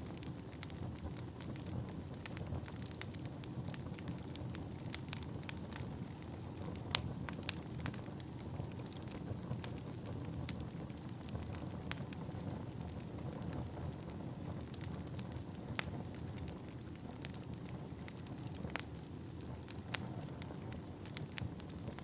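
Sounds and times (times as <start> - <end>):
low rush of flame: 0.0 - 22.0
wood crackling and popping: 0.0 - 22.0.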